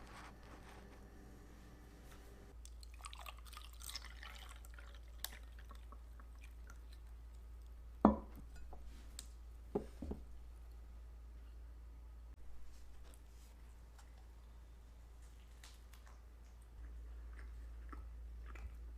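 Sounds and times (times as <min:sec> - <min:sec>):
liquid dribbling: 0:02.6 - 0:07.4.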